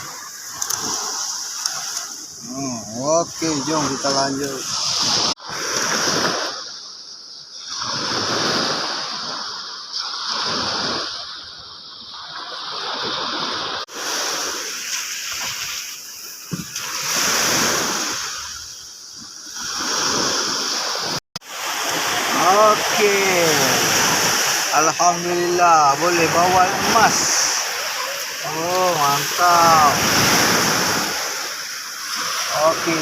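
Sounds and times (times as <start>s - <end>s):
steady high hiss: 0.0s - 4.6s, 21.5s - 33.0s
seawater splashing and sloshing: 0.0s - 6.7s, 7.6s - 18.6s, 19.5s - 33.0s.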